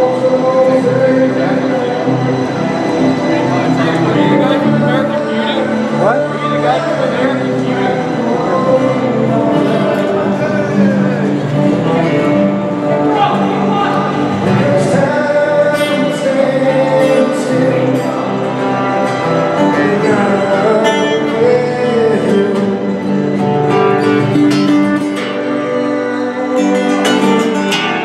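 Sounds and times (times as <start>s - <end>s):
guitar plucked and strummed: 0.0s - 28.0s.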